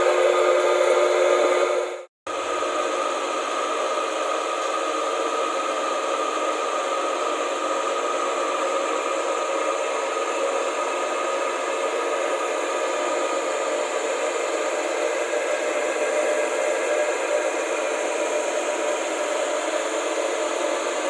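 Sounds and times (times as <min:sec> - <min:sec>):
electric pump motor whirring: 0:00.0 - 0:21.0.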